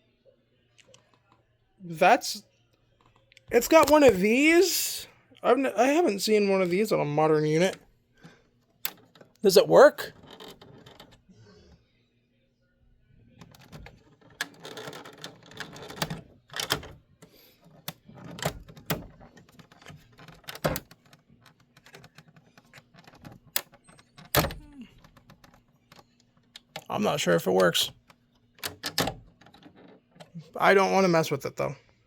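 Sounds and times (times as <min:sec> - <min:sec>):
plastic clicks and rattles: 0:08.8 - 0:09.4, 0:10.1 - 0:11.2, 0:13.4 - 0:17.0, 0:17.6 - 0:26.9, 0:27.6 - 0:30.4.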